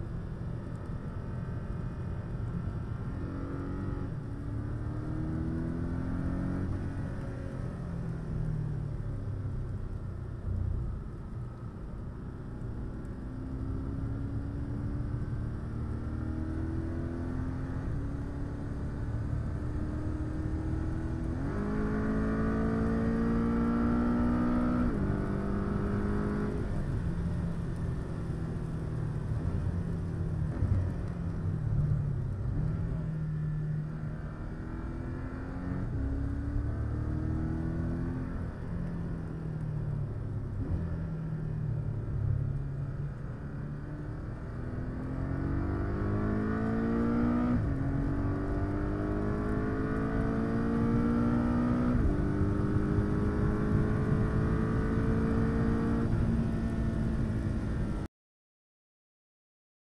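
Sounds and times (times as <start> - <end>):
road and tyre rumble: 0.0 - 58.1
car engine accelerating: 40.5 - 58.0.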